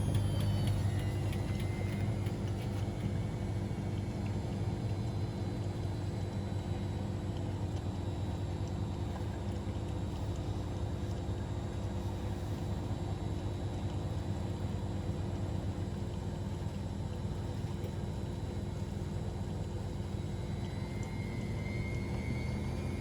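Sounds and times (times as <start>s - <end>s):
faint high whine: 0.0s - 4.0s, 20.2s - 23.0s
washing machine motor hum: 0.0s - 23.0s.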